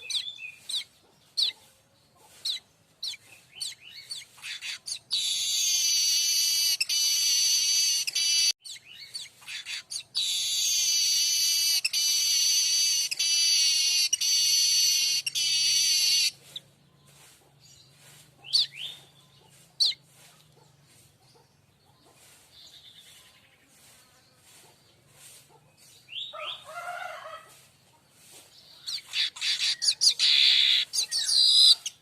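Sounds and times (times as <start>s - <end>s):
bird singing high phrases: 0.0s - 1.6s, 2.4s - 20.0s, 28.6s - 32.0s
bird chirps: 0.0s - 26.7s, 28.1s - 32.0s.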